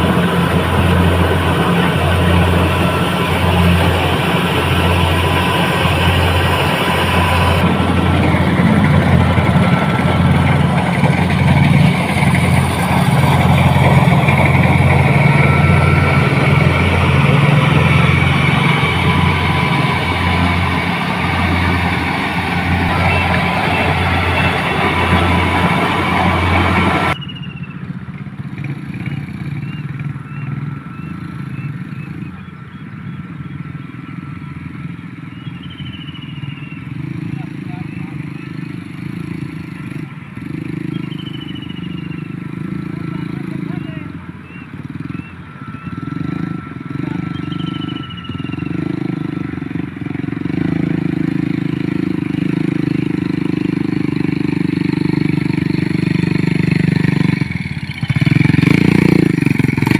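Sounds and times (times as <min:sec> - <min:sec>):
motorcycle engine running: 0:00.0 - 0:59.9
faint high chirps: 0:27.1 - 0:27.8, 0:29.0 - 0:37.0, 0:40.8 - 0:43.0, 0:44.4 - 0:49.1.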